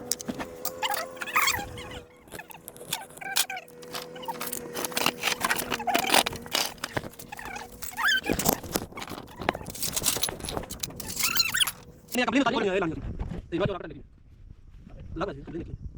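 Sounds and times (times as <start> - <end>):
hand tools clinking on metal: 0.0 - 12.2.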